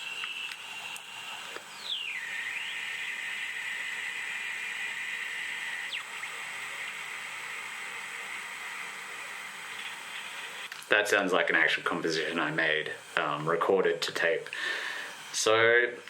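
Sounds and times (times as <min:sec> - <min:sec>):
electronic drone from small speaker: 0:00.0 - 0:10.6.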